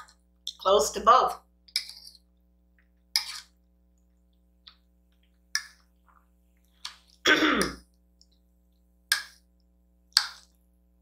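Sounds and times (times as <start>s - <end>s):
person clearing throat: 7.2s - 7.8s.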